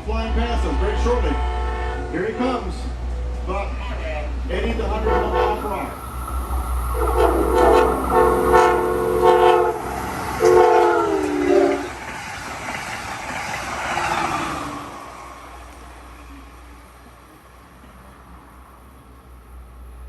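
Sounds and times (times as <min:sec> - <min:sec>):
train passing at speed: 0:00.0 - 0:20.0
train horn: 0:00.4 - 0:03.0, 0:04.9 - 0:06.0, 0:06.8 - 0:12.0.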